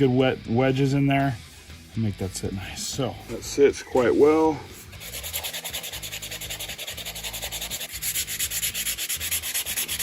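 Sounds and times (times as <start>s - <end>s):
sanding wood: 4.8s - 10.0s.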